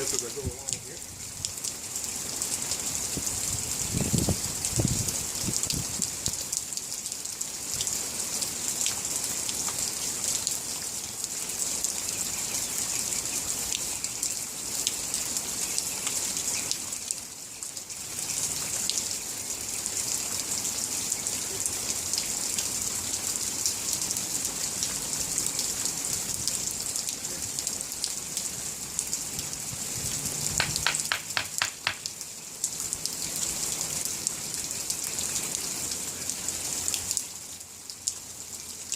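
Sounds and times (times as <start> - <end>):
steady rain falling: 0.0 - 38.9
quick run of clicks: 30.6 - 32.1
drops ticking close by: 30.6 - 32.2.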